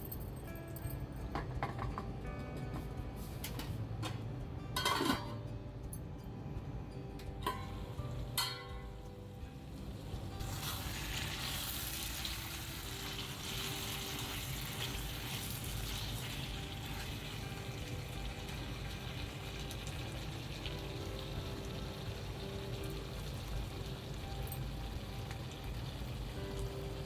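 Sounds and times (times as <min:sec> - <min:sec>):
food sizzling in hot oil: 0:09.8 - 0:27.0.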